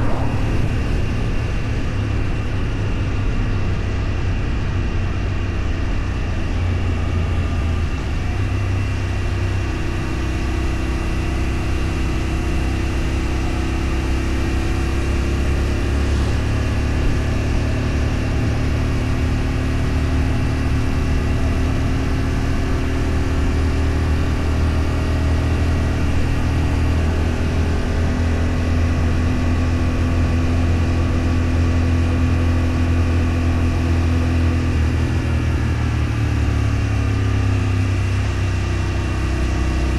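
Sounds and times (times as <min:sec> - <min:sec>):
vehicle engine humming: 0:00.0 - 0:13.4.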